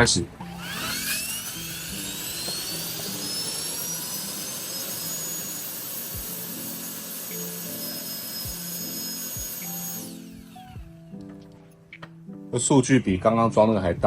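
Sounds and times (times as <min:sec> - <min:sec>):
high motor whine: 0:00.4 - 0:11.0
blower air rush: 0:00.6 - 0:10.8.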